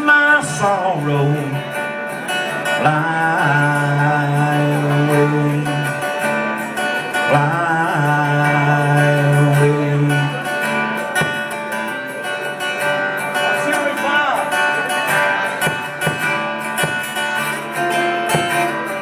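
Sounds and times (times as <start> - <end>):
man singing: 0.0 - 1.9, 2.5 - 11.5
acoustic guitar: 0.0 - 19.0.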